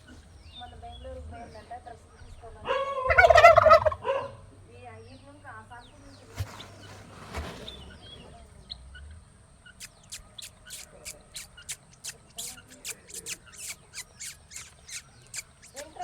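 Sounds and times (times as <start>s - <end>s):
faint high chirps: 9.6s - 16.0s
sharp clicks: 9.8s - 16.0s.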